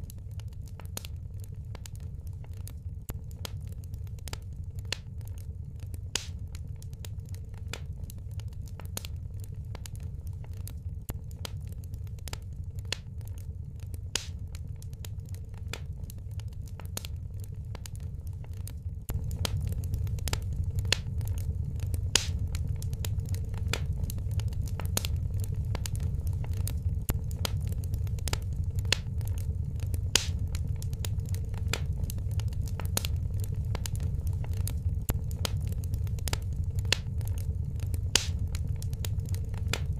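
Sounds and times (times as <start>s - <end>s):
fireplace fire crackling: 0.0s - 39.9s
low rumble of flame: 0.0s - 39.9s.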